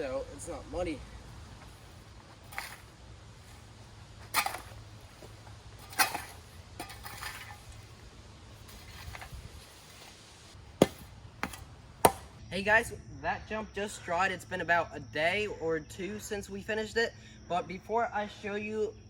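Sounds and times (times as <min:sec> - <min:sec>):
shovel scraping dirt: 0:01.6 - 0:12.4.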